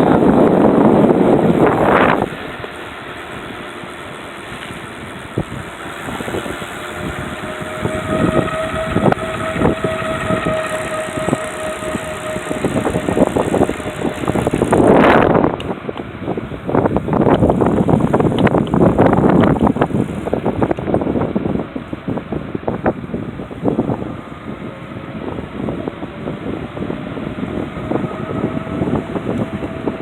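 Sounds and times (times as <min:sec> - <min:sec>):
trike rattling over bumps: 0:00.0 - 0:21.2
rush of noise: 0:00.0 - 0:30.0
steady motor whine: 0:00.0 - 0:30.0.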